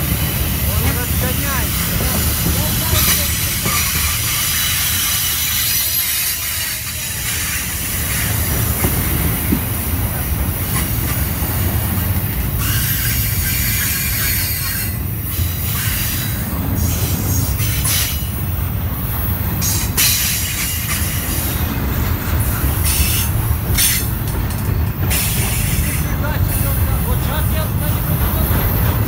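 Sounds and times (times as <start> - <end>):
freight train wheels rumbling: 0.0 - 29.0
wheels screeching: 10.5 - 26.9.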